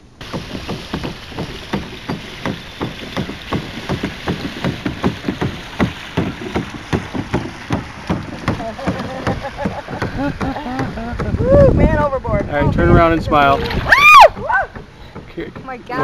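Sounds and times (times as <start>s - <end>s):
water wash: 0.0s - 16.0s
kayak paddle knocks and splashes: 0.2s - 16.0s
wind noise: 9.2s - 14.5s.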